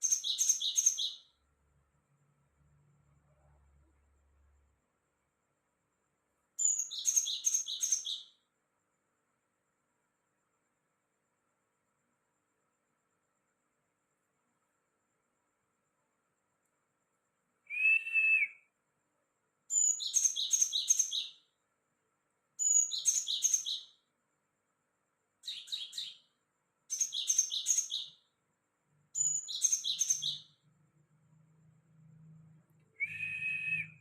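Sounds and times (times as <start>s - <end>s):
songbird singing buzzy trills: 0.0s - 5.1s, 5.8s - 8.6s, 19.6s - 21.6s, 22.5s - 24.2s, 25.3s - 34.0s.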